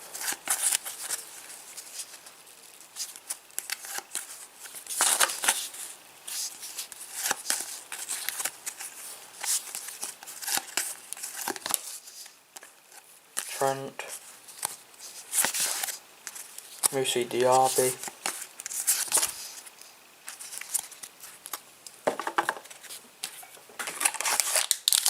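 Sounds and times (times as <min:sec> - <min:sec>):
foil packet tearing and crinkling: 0:00.1 - 0:05.8, 0:23.3 - 0:25.0.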